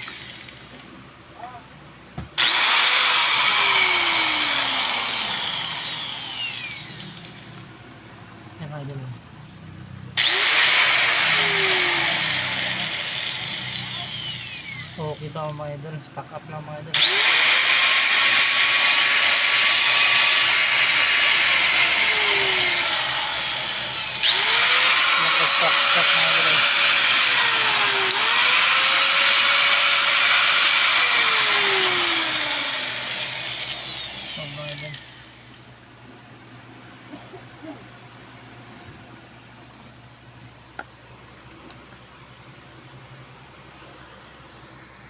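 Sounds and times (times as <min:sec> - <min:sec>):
angle grinder motor whine: 0:00.0 - 0:00.8, 0:02.4 - 0:07.7, 0:10.2 - 0:15.6, 0:16.9 - 0:35.8.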